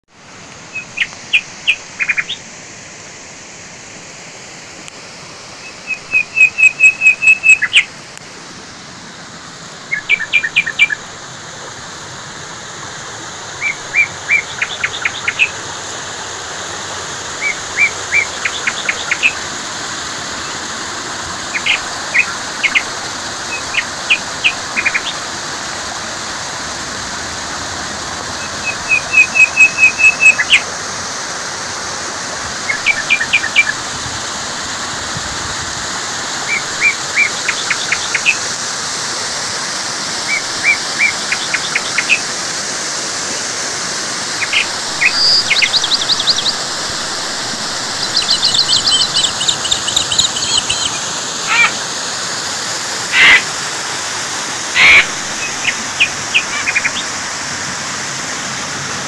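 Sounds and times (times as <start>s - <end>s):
water flowing fast: 0.0s - 59.0s
small bird singing: 0.7s - 2.4s, 5.6s - 7.9s, 9.9s - 11.1s, 13.6s - 15.6s, 17.4s - 19.4s, 21.5s - 25.2s, 28.4s - 30.7s, 32.7s - 33.8s, 36.5s - 38.4s, 40.3s - 42.3s, 44.4s - 47.0s, 47.6s - 51.8s, 53.1s - 53.4s, 54.8s - 57.1s.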